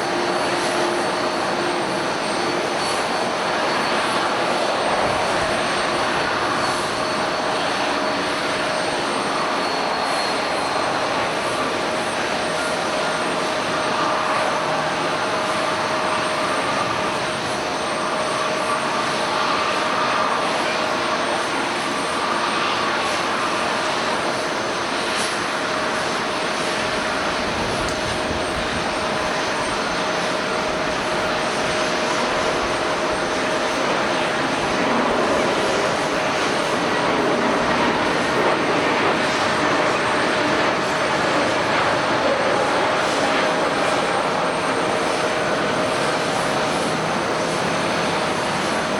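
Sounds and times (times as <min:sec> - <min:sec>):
jet engines running: 0:00.0 - 0:48.9.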